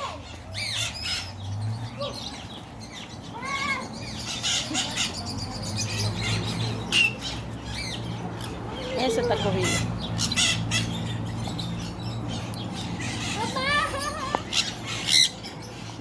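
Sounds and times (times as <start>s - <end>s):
parrots squawking and chirping: 0.0s - 16.0s.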